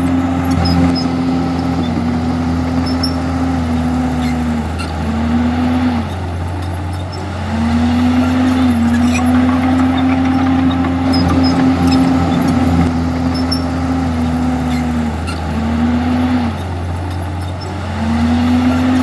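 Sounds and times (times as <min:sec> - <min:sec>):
bulldozer diesel engine running: 0:08.4 - 0:13.8.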